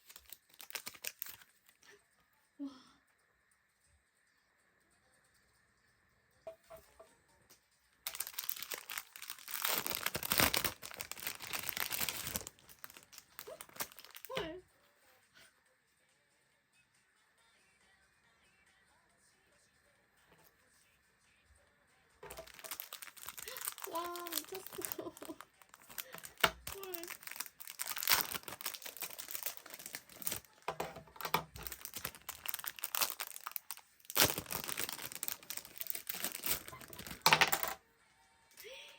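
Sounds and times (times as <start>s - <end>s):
packaging crinkling and tearing: 0.0s - 1.7s, 8.1s - 14.4s, 22.2s - 37.8s.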